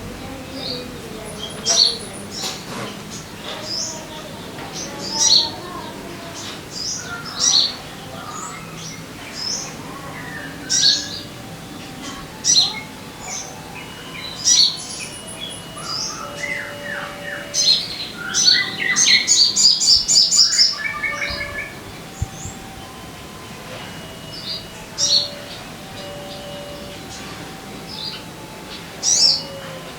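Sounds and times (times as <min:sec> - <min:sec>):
bird sharp high chirps: 0:12.6 - 0:22.9.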